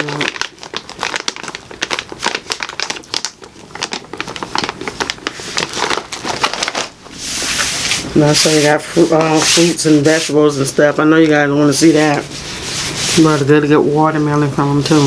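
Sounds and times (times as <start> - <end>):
plastic snack packaging crinkling: 0.0 - 10.2.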